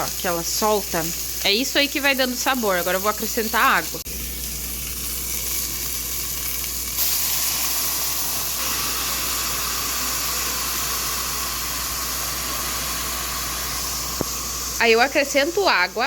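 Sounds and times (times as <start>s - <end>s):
meat sizzling in a pot: 0.0s - 16.0s
steam hissing: 7.0s - 16.0s.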